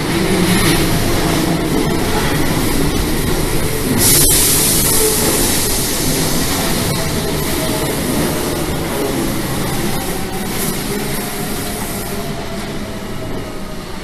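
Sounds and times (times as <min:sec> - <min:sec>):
train wheels rumbling on rails: 0:00.0 - 0:14.0
bright hiss: 0:03.8 - 0:12.3.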